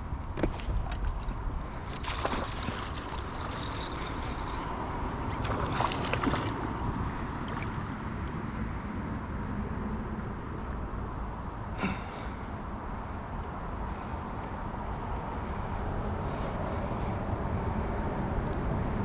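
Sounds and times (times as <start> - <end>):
wind rumble on microphone: 0.0 - 11.7, 12.6 - 19.0
water splashing and dripping: 1.2 - 8.0.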